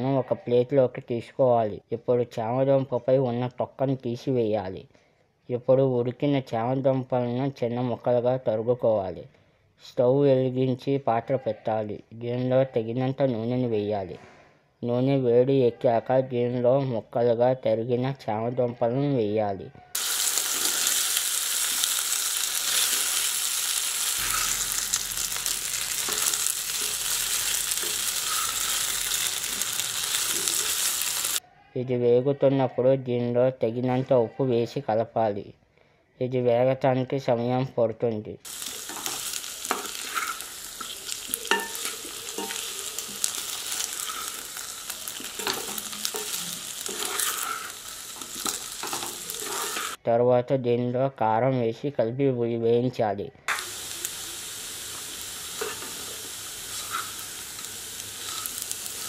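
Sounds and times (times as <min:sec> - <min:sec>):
food sizzling in hot oil: 0:20.0 - 0:31.4, 0:38.5 - 0:50.0, 0:53.5 - 0:59.0
wooden spatula scraping pan: 0:38.9 - 0:44.4, 0:45.2 - 0:50.0, 0:56.7 - 0:57.2.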